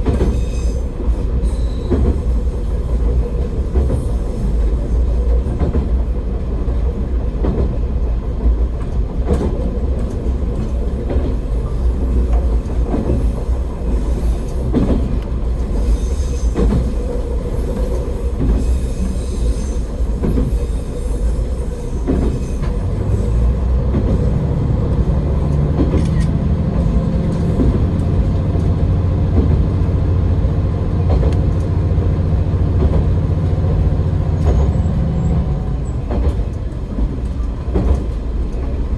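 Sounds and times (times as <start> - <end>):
railcar engine and wheels rumbling: 0.0 - 38.9
wheels knocking on rail joints: 22.0 - 38.8.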